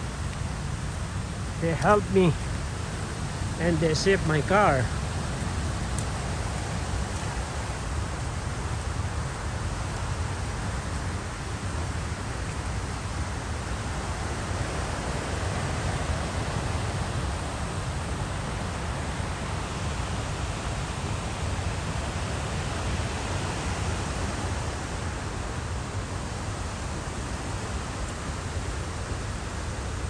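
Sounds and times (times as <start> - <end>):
creek water rushing: 0.0 - 30.0.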